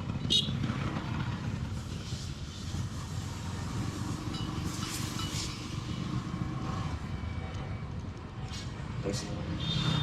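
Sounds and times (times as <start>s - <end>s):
motorcycle engine rumble: 0.0s - 8.9s.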